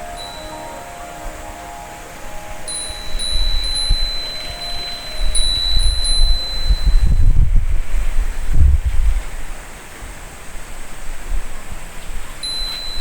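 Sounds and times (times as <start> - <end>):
wind chime ringing: 0.0 - 7.5, 12.4 - 13.0
wind gusts on microphone: 0.0 - 13.0.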